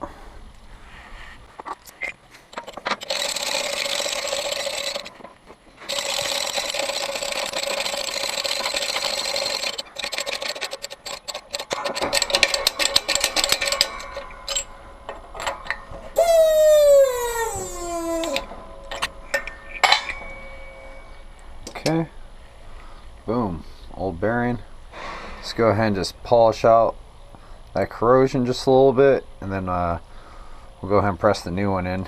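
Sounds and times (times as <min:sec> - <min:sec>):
fast clicking: 0:02.5 - 0:05.2, 0:05.8 - 0:14.7.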